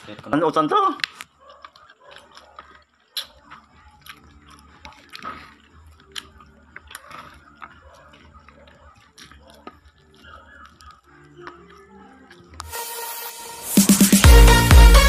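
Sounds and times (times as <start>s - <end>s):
person chewing and smacking: 1.0s - 12.7s.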